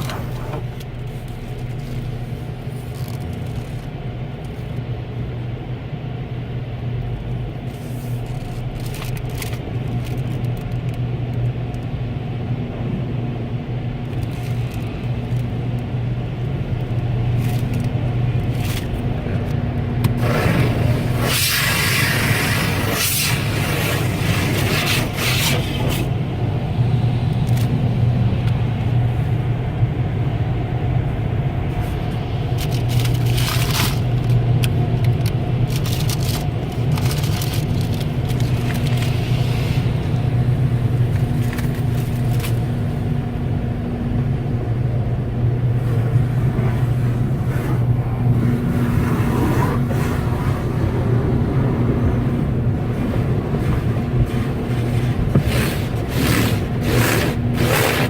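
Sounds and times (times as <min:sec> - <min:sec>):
car wash machinery rumble: 0:00.0 - 0:58.0
brushes scrubbing a car: 0:07.7 - 0:08.7, 0:20.2 - 0:26.2, 0:45.8 - 0:58.0
water spray: 0:20.2 - 0:26.1.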